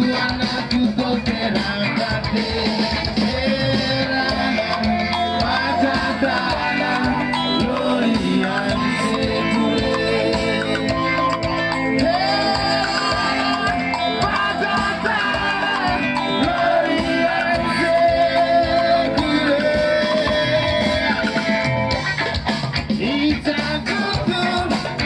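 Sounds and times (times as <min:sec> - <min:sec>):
person singing: 0:00.0 - 0:21.6, 0:23.0 - 0:25.0
drums with steady beat: 0:00.0 - 0:25.0
guitar: 0:00.0 - 0:25.0.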